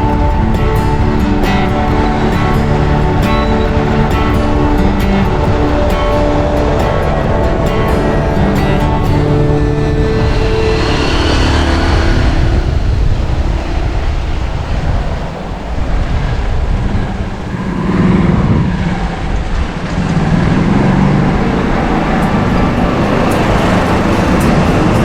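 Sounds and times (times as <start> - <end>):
motor vehicle engine: 0.0 - 19.6, 20.6 - 25.0
road and traffic noise: 0.0 - 25.0
wind rumbling over microphone: 0.0 - 25.0.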